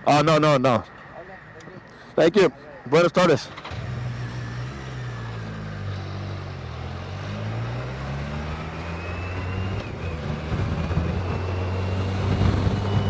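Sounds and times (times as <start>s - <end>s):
motorcycle engine pulling away: 3.5s - 13.0s.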